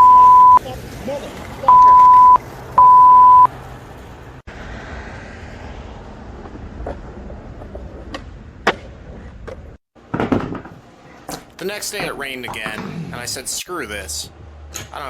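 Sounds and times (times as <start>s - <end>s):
skateboard wheels rolling on pavement: 0.4s - 2.8s, 3.5s - 12.7s.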